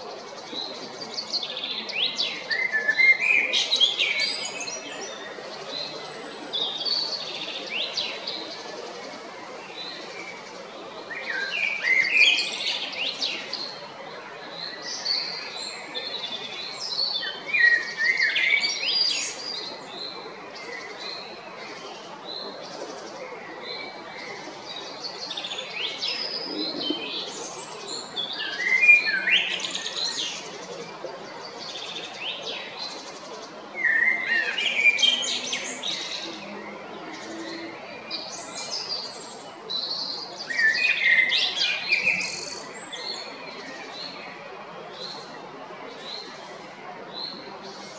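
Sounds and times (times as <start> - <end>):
blackbird singing: 33.8 - 44.2.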